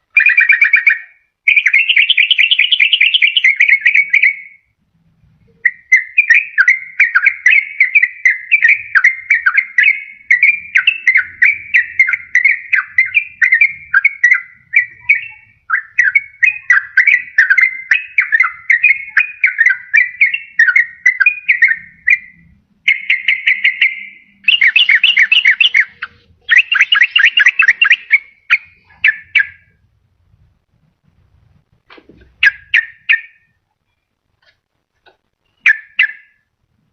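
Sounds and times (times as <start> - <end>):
bulbul singing whistled phrases: 0.0 - 4.8, 5.4 - 29.8, 32.2 - 34.0, 35.4 - 36.5
bird chattering notes: 5.5 - 29.8, 32.2 - 33.4.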